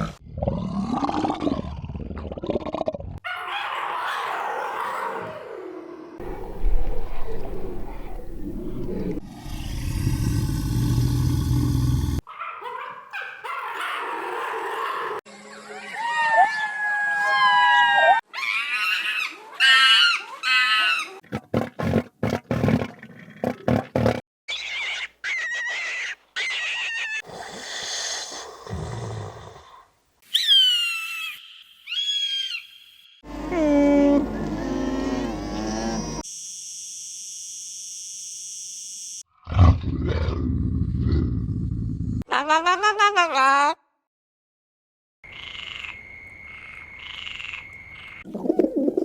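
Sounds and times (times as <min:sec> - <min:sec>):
low rough animal roar: 0:07.8 - 0:12.2, 0:33.2 - 0:36.2
pitched animal call: 0:24.5 - 0:29.1.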